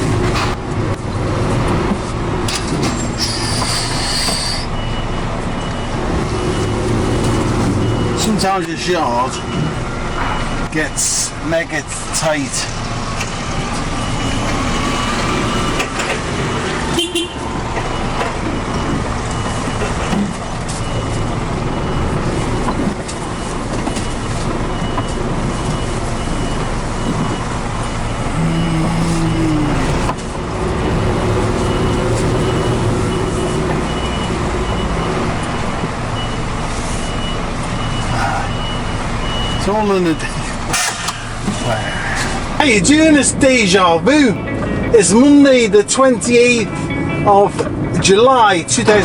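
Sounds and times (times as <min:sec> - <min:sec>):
reversing alarm beeps: 0:03.2 - 0:11.3, 0:13.4 - 0:30.1, 0:30.9 - 0:40.6
lorry engine running: 0:12.7 - 0:42.4.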